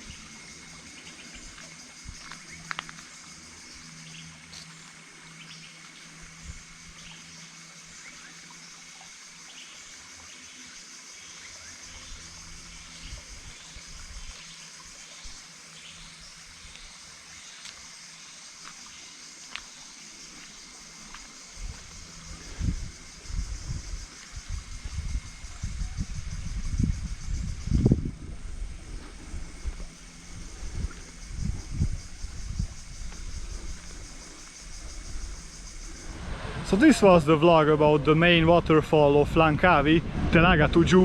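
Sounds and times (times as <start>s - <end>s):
constant high drone: 0.0s - 41.0s
water trickling over rocks: 0.2s - 3.5s.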